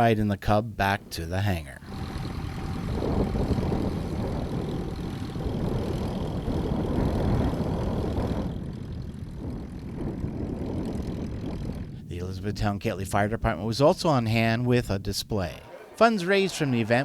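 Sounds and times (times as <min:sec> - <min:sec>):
light plane engine droning: 0:01.8 - 0:12.1.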